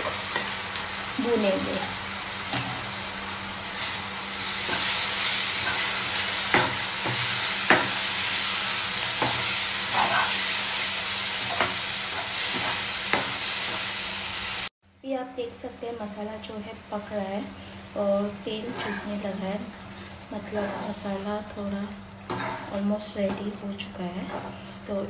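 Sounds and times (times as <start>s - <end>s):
masala sizzling in pan: 0.0s - 14.8s, 16.0s - 25.0s
spatula knocking and scraping pan: 4.6s - 10.5s, 11.4s - 13.9s, 18.7s - 19.2s, 20.4s - 21.2s, 22.3s - 24.6s.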